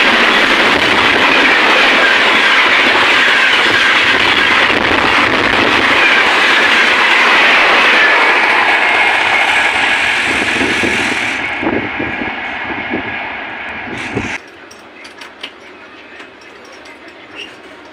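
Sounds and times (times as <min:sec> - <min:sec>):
train rushing past: 0:00.0 - 0:17.9
wheel clacks over rail joints: 0:14.4 - 0:17.9.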